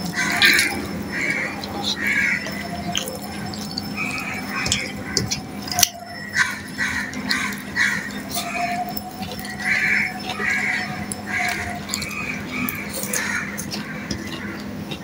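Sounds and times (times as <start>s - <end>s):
fingers mixing rice on steel plate: 0.0s - 15.0s
wet chewing and lip smacking: 0.0s - 15.0s.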